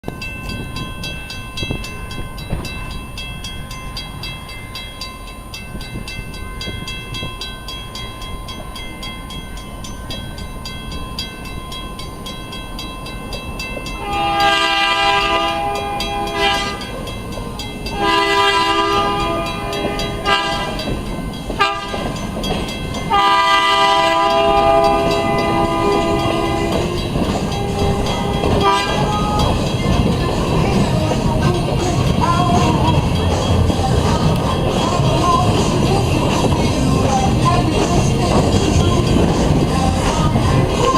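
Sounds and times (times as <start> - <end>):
low rumble of train: 0.0 - 40.9
steady high ringing: 0.0 - 40.9
locomotive horn: 14.0 - 17.0, 17.9 - 20.9, 21.6 - 22.2, 23.1 - 29.6.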